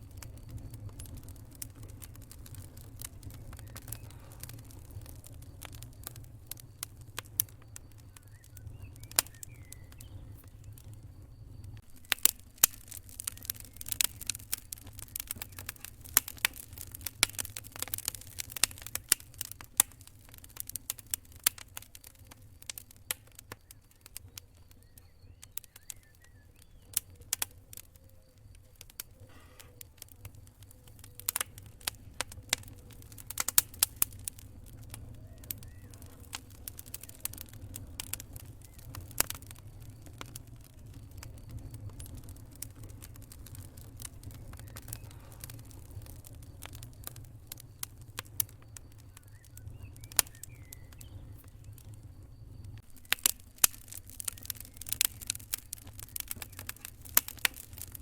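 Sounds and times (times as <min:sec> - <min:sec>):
campfire crackling and popping: 0:00.0 - 0:58.0
cricket trill: 0:00.0 - 0:58.0
low rumble of burning fire: 0:00.0 - 0:58.0.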